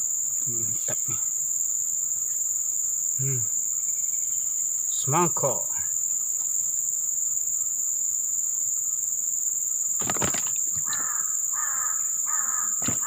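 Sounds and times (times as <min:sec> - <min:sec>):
high insect drone: 0:00.0 - 0:13.0
crow cawing: 0:10.2 - 0:13.0.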